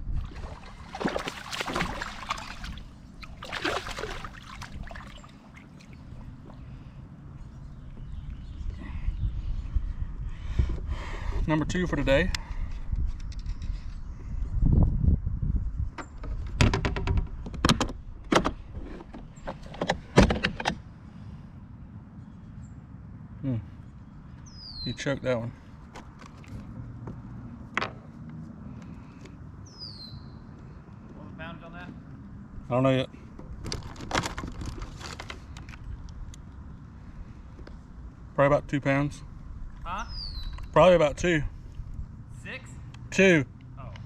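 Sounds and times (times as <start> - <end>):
water splashing and trickling: 0.0 - 7.0
water lapping: 0.0 - 7.1
clicks and knocks on plastic kayak: 16.0 - 20.8.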